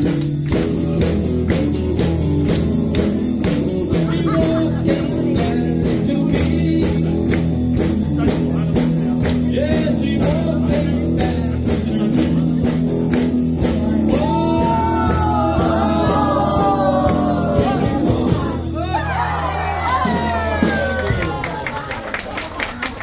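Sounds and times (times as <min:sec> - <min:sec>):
rock band playing: 0:00.0 - 0:21.6
person singing: 0:00.5 - 0:07.6, 0:08.2 - 0:18.8.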